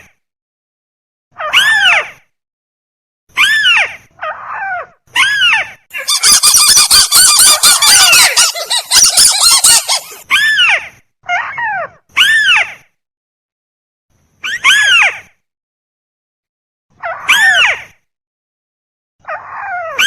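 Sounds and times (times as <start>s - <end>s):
recorded bird calls: 6.0s - 10.3s.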